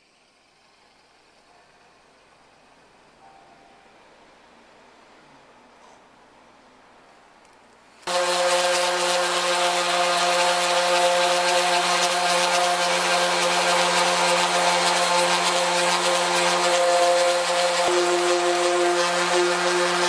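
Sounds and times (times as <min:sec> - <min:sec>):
power sander on metal: 0:08.1 - 0:20.0.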